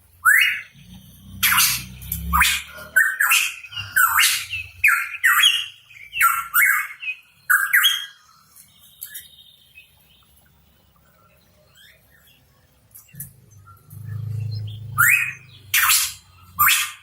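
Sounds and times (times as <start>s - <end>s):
bird giving harsh calls: 0.2s - 8.2s.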